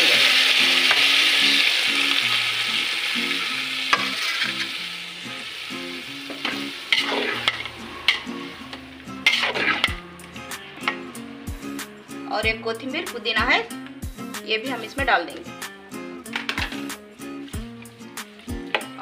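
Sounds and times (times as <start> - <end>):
chicken sizzling in hot oil: 0.0 - 10.0
metal fork scraping a pot: 9.2 - 10.0.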